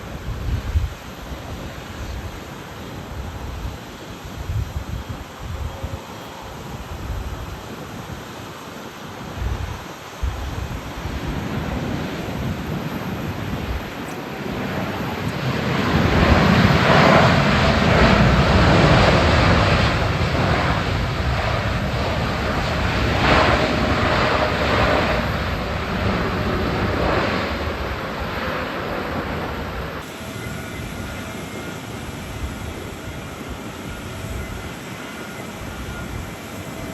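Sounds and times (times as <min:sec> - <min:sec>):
wind buffeting microphone: 0:00.0 - 0:08.4, 0:09.2 - 0:36.9
jet engines roaring: 0:00.0 - 0:36.9.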